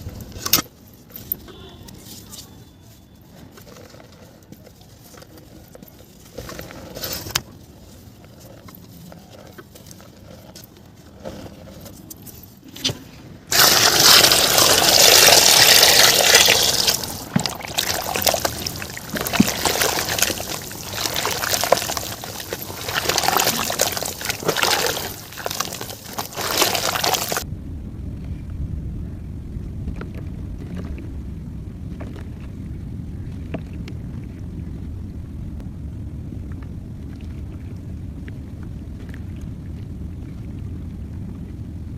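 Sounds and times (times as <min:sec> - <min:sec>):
low steady rumble: 0:03.8 - 0:41.9
mud crumbling into water: 0:13.5 - 0:27.5
water splashing: 0:13.5 - 0:27.5.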